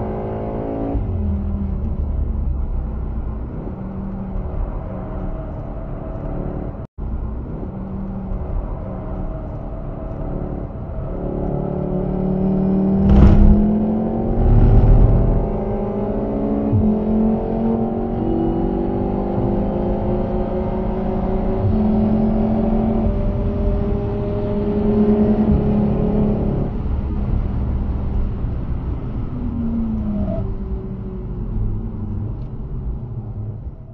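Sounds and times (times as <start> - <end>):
car engine accelerating: 0.0 - 33.9
road noise inside car: 0.0 - 33.9
loud thumps: 13.0 - 15.5.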